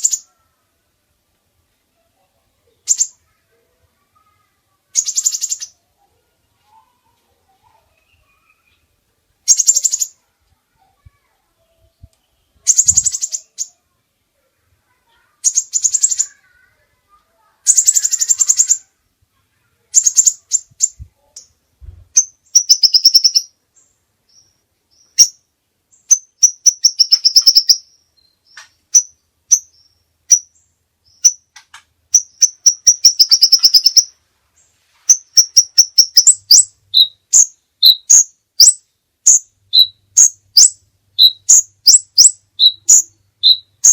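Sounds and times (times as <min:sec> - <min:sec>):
songbird singing trilled phrases: 0:00.0 - 0:00.4, 0:02.7 - 0:03.4, 0:04.2 - 0:05.9, 0:07.6 - 0:10.2, 0:10.8 - 0:13.8, 0:15.1 - 0:16.8, 0:17.6 - 0:18.9, 0:19.8 - 0:34.2, 0:35.1 - 0:43.9.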